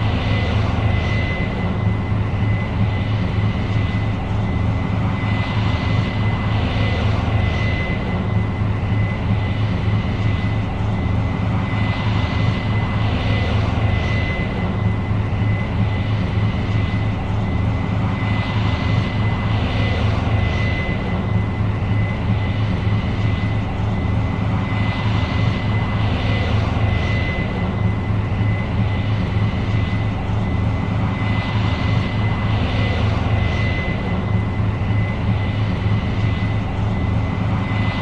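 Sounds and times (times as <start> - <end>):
combine engine drone: 0.0 - 38.0
thin steady whine: 0.0 - 38.0.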